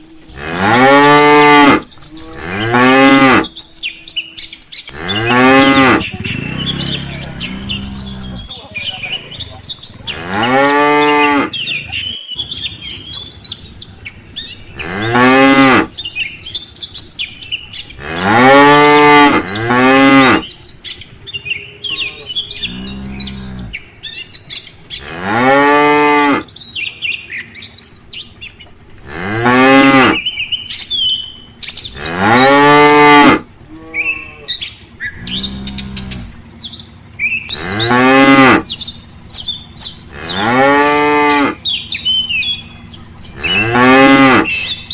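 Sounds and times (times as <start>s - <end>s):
small birds chirping: 0.0s - 44.9s
cattle mooing: 0.1s - 3.6s, 4.9s - 11.9s, 13.5s - 17.0s, 17.7s - 20.5s, 21.8s - 23.9s, 24.9s - 26.5s, 29.0s - 30.4s, 31.8s - 41.7s, 42.4s - 44.9s.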